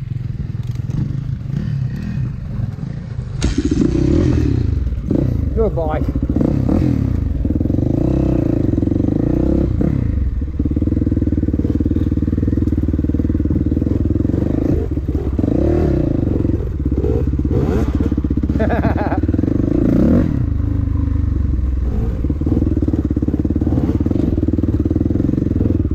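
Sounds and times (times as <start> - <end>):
dirt bike engine running: 0.0 - 25.9.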